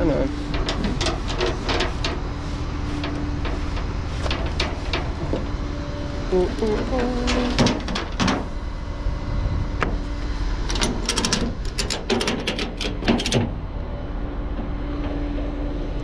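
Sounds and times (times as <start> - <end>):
vehicle engine running: 0.0 - 16.0
sharp clicks and knocks: 0.5 - 5.6, 6.6 - 8.5, 10.7 - 13.6.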